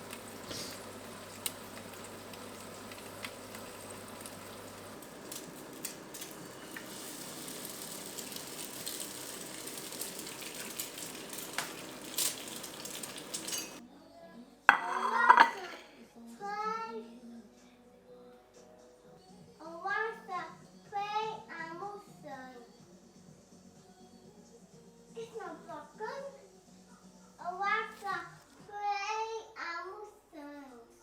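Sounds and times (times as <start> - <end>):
food sizzling in a pan: 0.0 - 13.8, 14.7 - 15.8
utensils clicking and tapping: 10.4 - 13.8.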